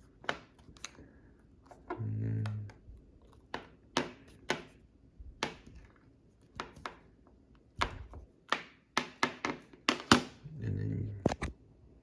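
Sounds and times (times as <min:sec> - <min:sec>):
clicks and taps on hard surface: 0:01.7 - 0:04.8, 0:05.4 - 0:07.1.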